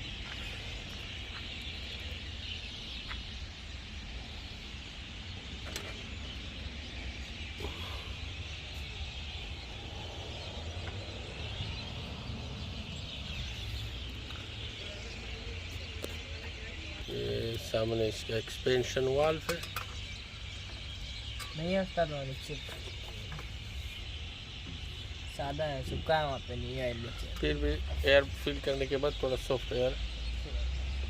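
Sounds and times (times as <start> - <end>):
compressor low hum: 0.0 - 16.0.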